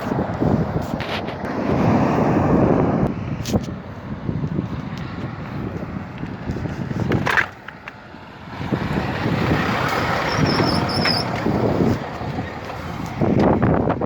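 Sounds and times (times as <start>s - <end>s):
heavy truck passing: 0.0s - 14.0s
short high squeal: 10.2s - 11.3s.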